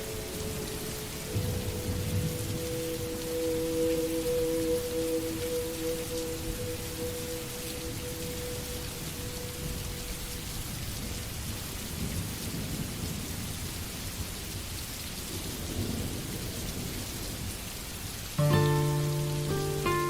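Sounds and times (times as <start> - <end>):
distant thunder rumbling: 0.0 - 13.3
steady rainfall: 0.0 - 20.0
plucked guitar music: 18.4 - 20.0.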